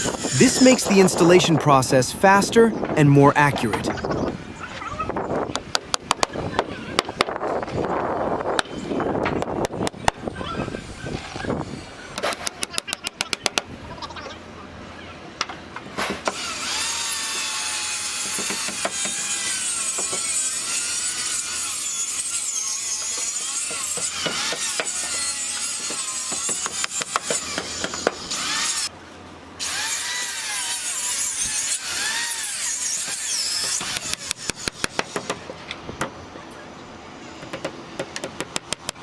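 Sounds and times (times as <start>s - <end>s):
power saw cutting wood: 0.0s - 1.4s, 16.0s - 28.9s, 29.6s - 35.4s.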